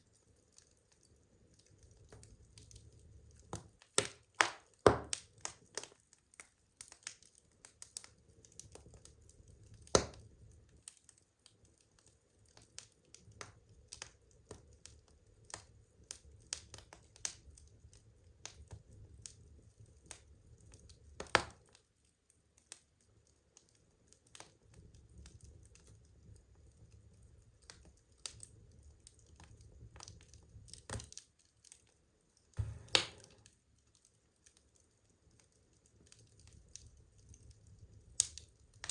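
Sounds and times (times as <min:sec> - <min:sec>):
low rumble of flames: 0:00.0 - 0:21.8, 0:23.0 - 0:31.3, 0:32.3 - 0:38.9
wood fire crackling: 0:00.0 - 0:38.9.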